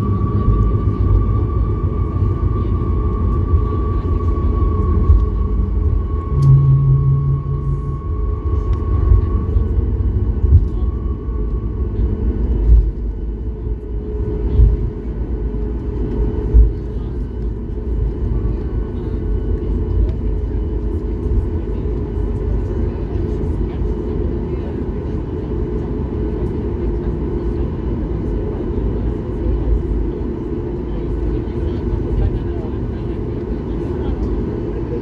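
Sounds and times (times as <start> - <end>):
aircraft cabin rumble: 0.0 - 35.0
jet engine whine: 0.0 - 35.0.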